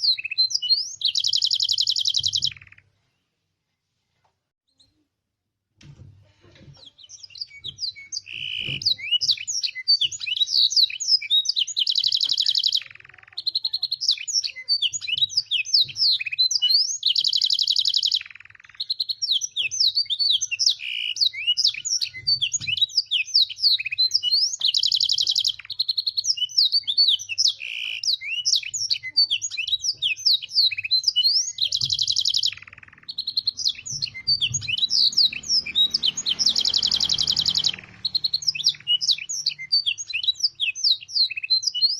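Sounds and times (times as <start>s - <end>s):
canary singing: 0.0s - 3.0s, 6.8s - 41.9s
rolling canary trill: 27.2s - 41.4s.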